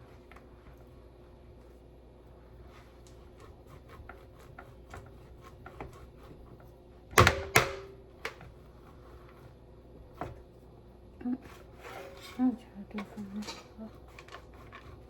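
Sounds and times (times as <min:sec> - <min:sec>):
cheese grated on metal grater: 0:11.2 - 0:15.0.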